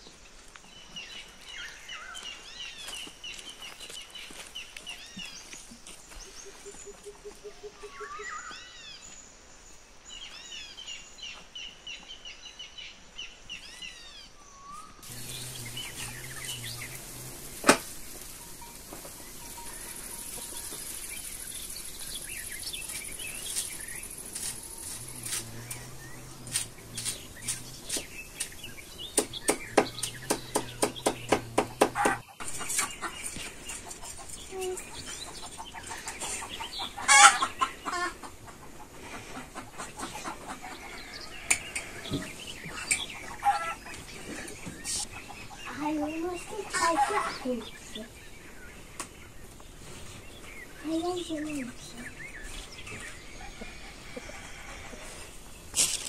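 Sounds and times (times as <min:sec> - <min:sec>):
small birds chirping: 0:00.0 - 0:56.0
sharp knock: 0:29.2 - 0:32.2.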